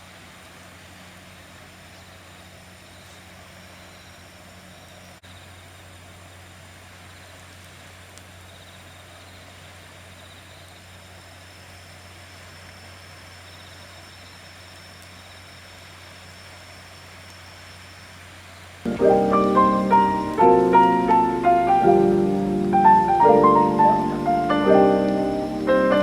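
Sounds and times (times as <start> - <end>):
constant low hum: 0.0 - 26.0
insects chirping in trills: 1.5 - 7.6, 8.2 - 26.0
high insect buzz: 18.9 - 26.0.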